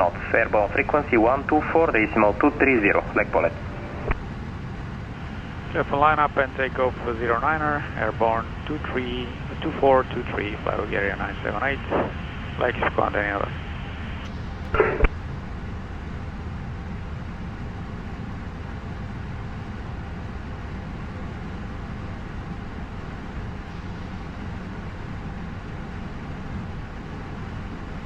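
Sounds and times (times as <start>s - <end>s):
radio speech: 0.0s - 4.2s, 5.5s - 15.1s
cockpit ventilation: 0.0s - 28.0s
jet engines idling: 0.0s - 28.0s
radio click: 2.0s - 4.2s, 11.8s - 13.0s.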